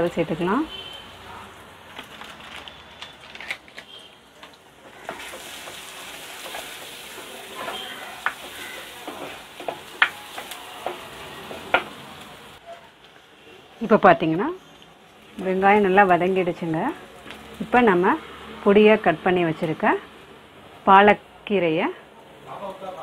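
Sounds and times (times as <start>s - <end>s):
oil sizzling: 4.2s - 20.8s.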